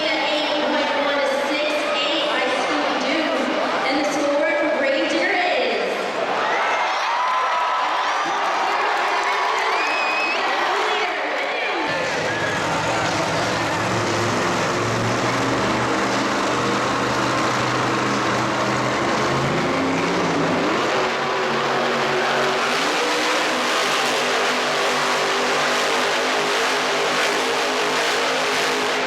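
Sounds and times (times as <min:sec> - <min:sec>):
wide noisy haze: 0:10.0 - 0:29.0
monster truck engine running: 0:11.7 - 0:29.0.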